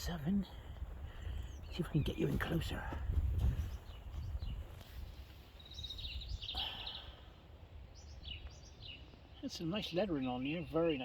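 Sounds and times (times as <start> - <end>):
low rumble on microphone: 0.0 - 6.5
songbird chirps and trill: 0.0 - 11.0.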